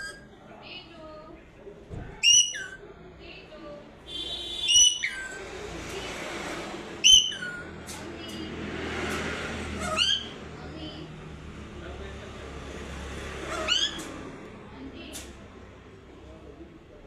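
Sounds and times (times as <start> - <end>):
parrot whistled calls: 2.2 - 2.8, 4.6 - 5.4, 7.0 - 7.8.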